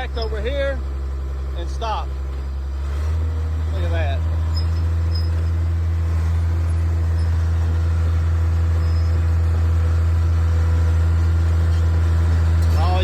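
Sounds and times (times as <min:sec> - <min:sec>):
bulldozer diesel engine droning: 0:00.0 - 0:13.0.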